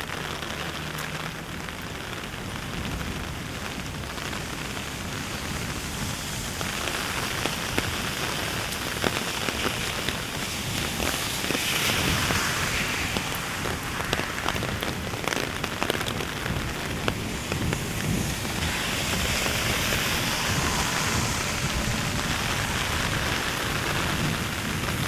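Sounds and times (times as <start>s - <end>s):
heavy rain falling: 0.0s - 25.0s
raindrops ticking close by: 0.0s - 25.0s.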